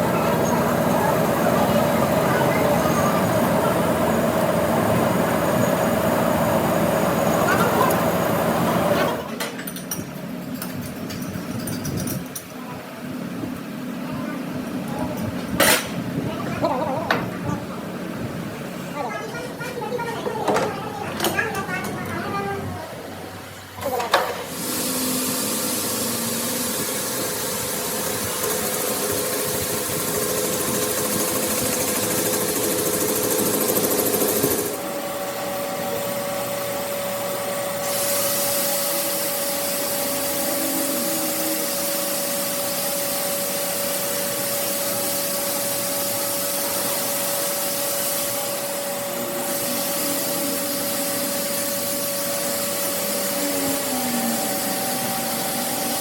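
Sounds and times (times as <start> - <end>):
power tool humming and hissing: 23.9 - 56.0.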